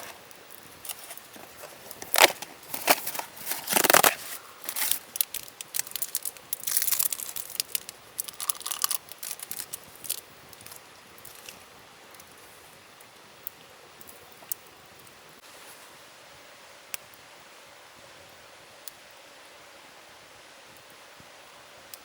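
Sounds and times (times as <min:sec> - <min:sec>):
handling clicks and rustles: 0:00.0 - 0:11.6
tearing or crinkling: 0:00.0 - 0:11.6.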